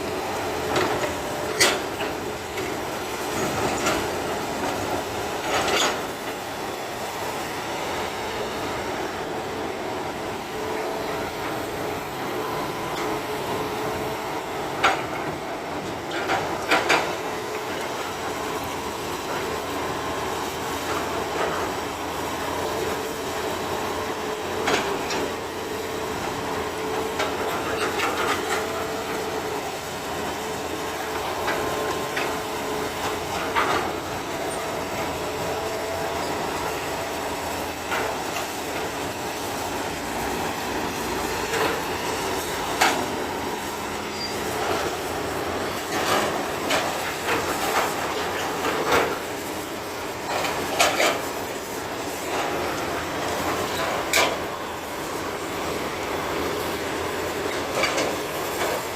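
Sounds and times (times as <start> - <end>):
excavator engine running: 0.0 - 58.9.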